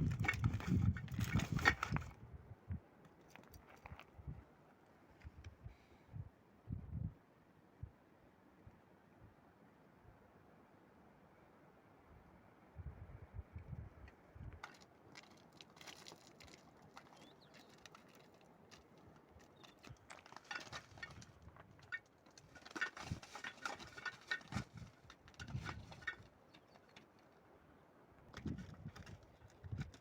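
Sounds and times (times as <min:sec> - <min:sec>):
footsteps crunching on stony ground: 0:14.6 - 0:21.8.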